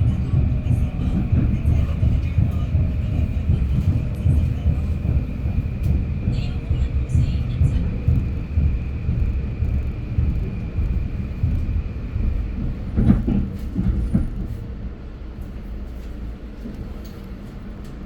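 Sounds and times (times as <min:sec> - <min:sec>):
high whine: 0:00.0 - 0:14.4
train rumbling: 0:00.0 - 0:18.0.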